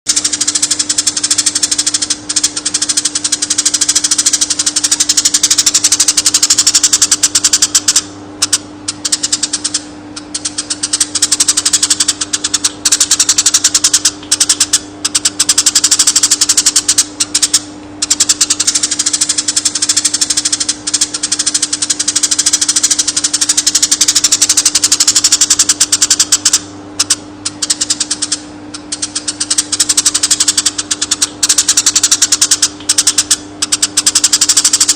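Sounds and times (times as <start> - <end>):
sparrow singing rolling trills: 0.1 - 34.9
steady low hum: 0.1 - 34.9.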